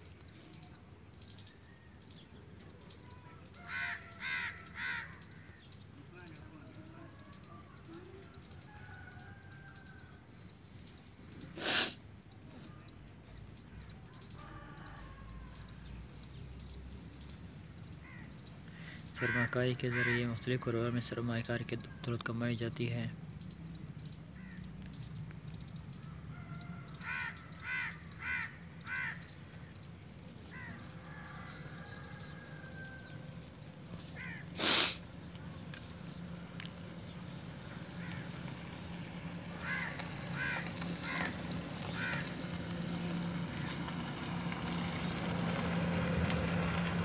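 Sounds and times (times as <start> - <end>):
bird calling: 33.9 - 43.9.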